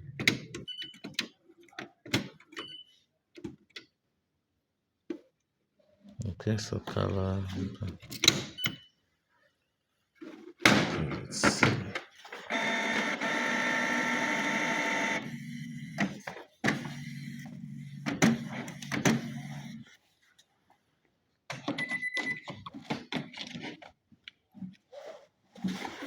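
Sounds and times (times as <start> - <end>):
printer motors whirring: 11.2 - 19.9.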